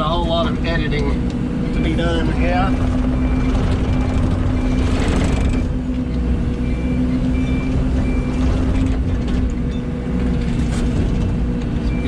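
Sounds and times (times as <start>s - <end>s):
excavator diesel engine running: 0.1s - 12.0s.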